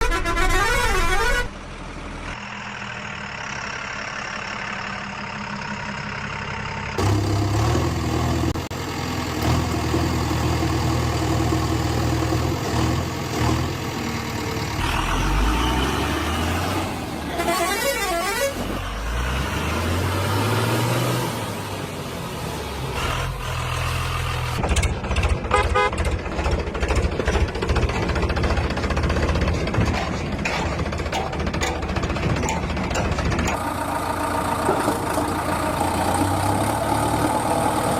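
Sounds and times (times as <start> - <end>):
horn honks: 0.0 - 1.6, 17.3 - 18.8, 25.5 - 26.1
vehicle engines revving: 7.0 - 37.9.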